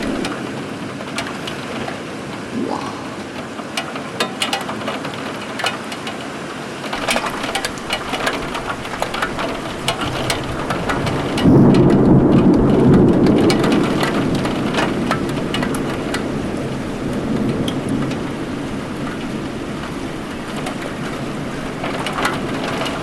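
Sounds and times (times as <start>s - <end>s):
thunder rumbling: 0.0s - 1.4s, 7.0s - 22.9s
raindrops ticking: 6.9s - 23.0s.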